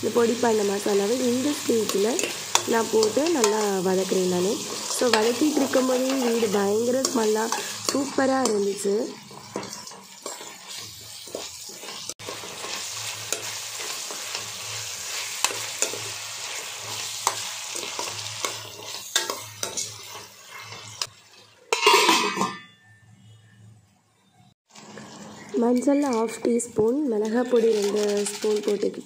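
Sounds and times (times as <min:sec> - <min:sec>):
vegetables sizzling in oil: 0:00.0 - 0:22.4, 0:24.7 - 0:29.0
spatula scraping a pan: 0:01.1 - 0:22.6, 0:27.2 - 0:29.0
metal lid clattering onto pan: 0:21.7 - 0:22.7.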